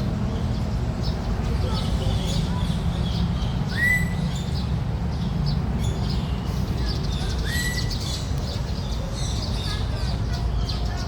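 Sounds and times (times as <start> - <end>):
whistled bird notes: 3.7 - 4.6, 7.2 - 8.3.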